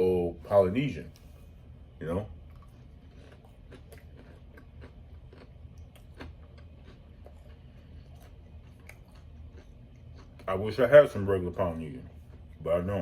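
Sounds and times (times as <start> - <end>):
close-up chewing: 2.4 - 10.9.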